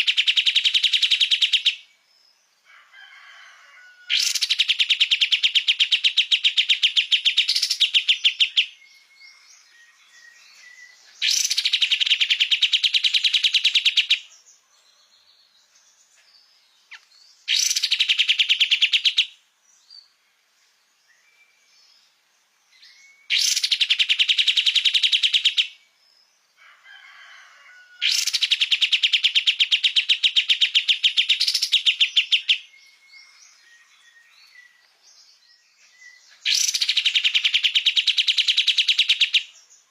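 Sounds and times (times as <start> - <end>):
songbird rapid trill: 0.0 - 1.9, 4.1 - 14.3, 16.9 - 19.4, 22.8 - 25.8, 28.0 - 34.8, 36.1 - 39.9.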